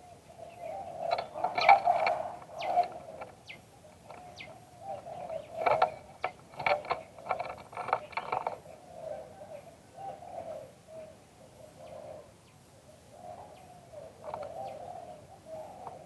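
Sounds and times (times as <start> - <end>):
dove cooing: 0.0 - 16.0
sharp clicks or rattles: 1.1 - 8.6.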